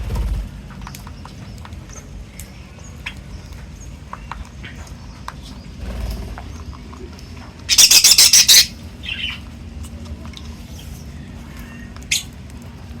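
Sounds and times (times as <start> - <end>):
bird squawking: 7.7 - 9.4.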